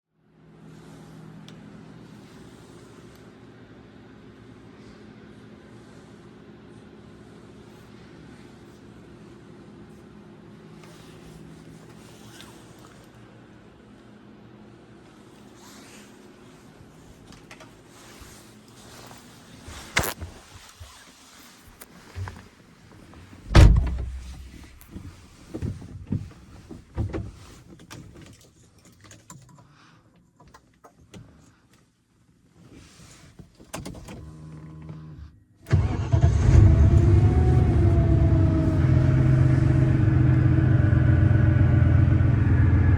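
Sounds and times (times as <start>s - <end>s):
car door click: 23.5s - 24.5s
car door slamming: 23.5s - 24.6s
clunks and knocks inside car: 23.5s - 27.5s
car engine idling: 35.8s - 42.9s.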